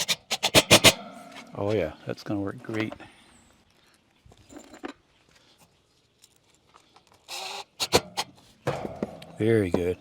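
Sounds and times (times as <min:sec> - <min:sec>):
metal scrape: 0:00.0 - 0:01.8, 0:07.3 - 0:09.2.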